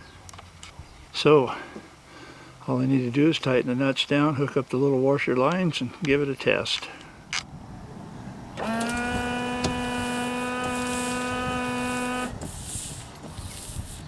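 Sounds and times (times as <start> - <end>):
washer pump electric whine: 8.6 - 13.9.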